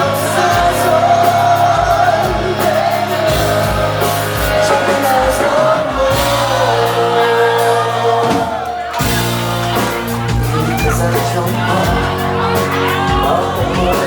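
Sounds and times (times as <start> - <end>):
bass: 0.0 - 14.0
steady drum beat: 0.0 - 14.0
sustained bending lead guitar: 0.0 - 14.0.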